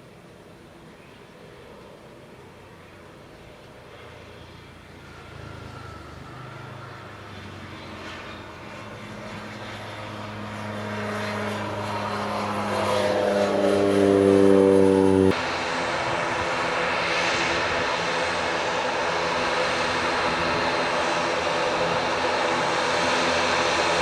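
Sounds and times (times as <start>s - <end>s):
airliner engines humming: 0.0s - 24.0s.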